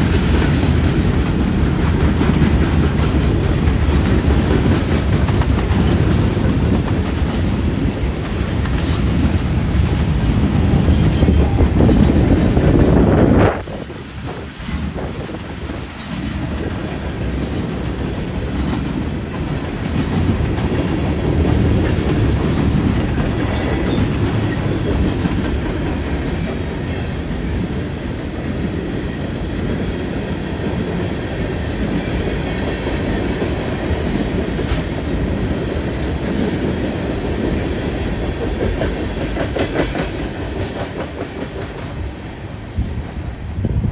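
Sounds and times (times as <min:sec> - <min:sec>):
freight train rumbling past: 0:00.0 - 0:43.9
wheels clicking over track: 0:33.8 - 0:43.4.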